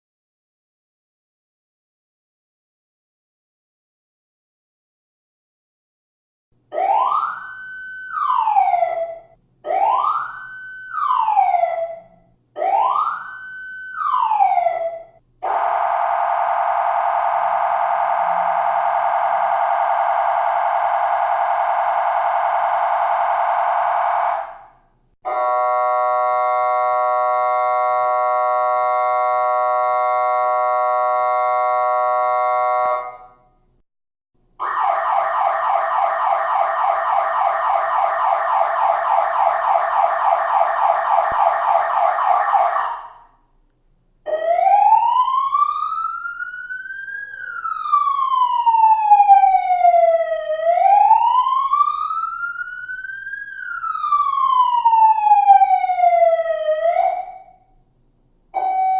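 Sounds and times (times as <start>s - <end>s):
electronic siren: 6.7s - 33.5s, 34.6s - 43.4s, 44.3s - 57.7s, 58.6s - 58.9s.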